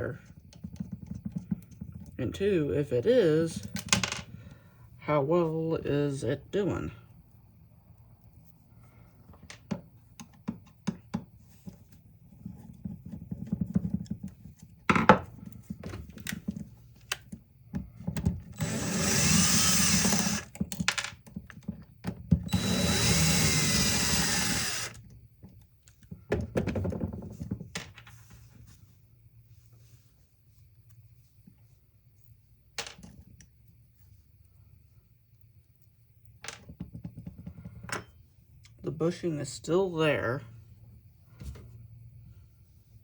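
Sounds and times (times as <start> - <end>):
power drill running: 18.6 - 20.6, 22.5 - 25.0.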